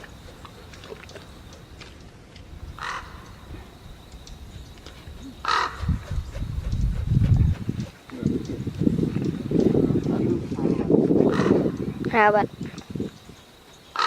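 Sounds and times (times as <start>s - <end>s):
bird harsh calls: 2.7s - 7.1s, 11.2s - 11.9s, 12.7s - 14.0s.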